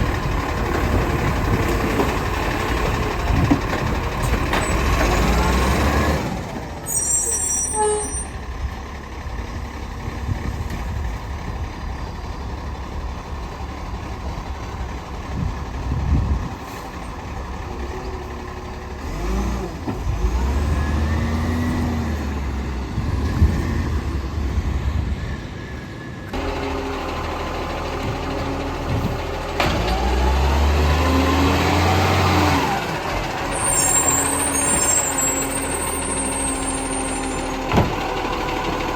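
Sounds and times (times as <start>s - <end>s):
diesel truck engine revving: 0.0s - 8.0s, 8.6s - 38.9s.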